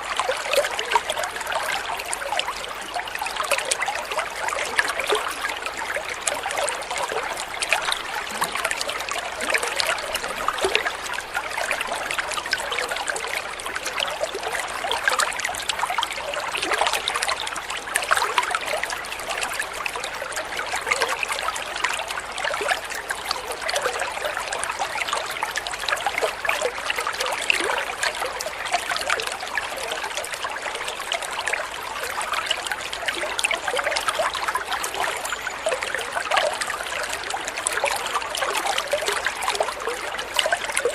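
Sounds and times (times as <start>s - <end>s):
water trickling and splashing: 0.0s - 40.9s.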